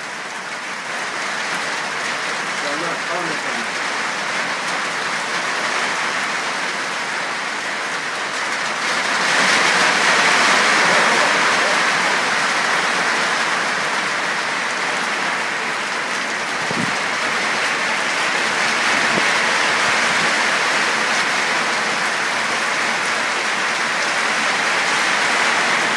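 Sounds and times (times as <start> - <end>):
rain falling: 0.0 - 25.9.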